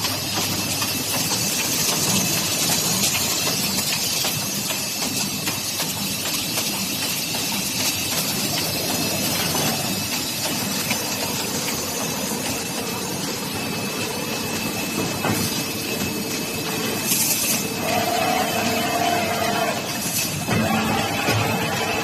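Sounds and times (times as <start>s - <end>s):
die-cutting machine running: 0.0s - 22.0s
high mechanical whine: 8.4s - 22.0s.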